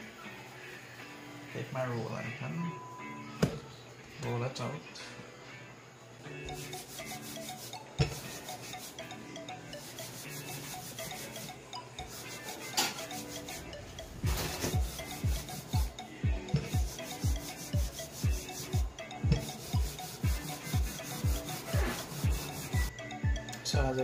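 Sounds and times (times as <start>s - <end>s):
rolling pin rolling dough: 6.5s - 22.9s
music with thudding beat: 8.0s - 8.6s, 12.4s - 24.0s.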